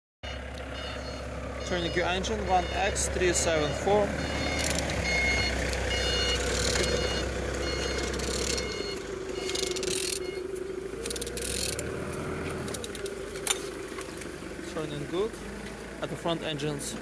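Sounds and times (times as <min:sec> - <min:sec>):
engine being turned over: 0:03.8 - 0:16.0.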